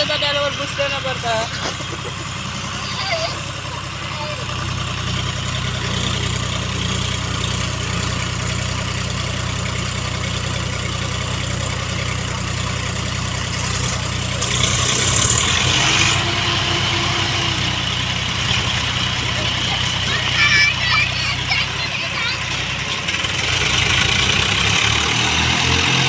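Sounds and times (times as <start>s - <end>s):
people talking: 0.0s - 4.5s, 18.6s - 22.8s
tractor diesel engine idling: 0.0s - 26.0s.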